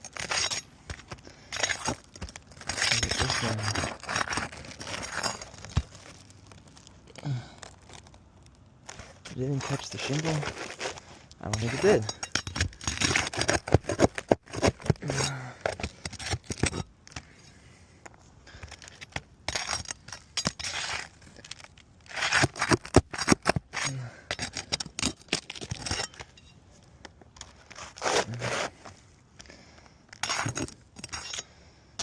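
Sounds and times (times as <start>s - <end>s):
metal tool scraping shingles: 0.0s - 6.1s, 8.9s - 17.2s, 18.7s - 26.5s, 27.4s - 28.8s, 30.2s - 31.5s.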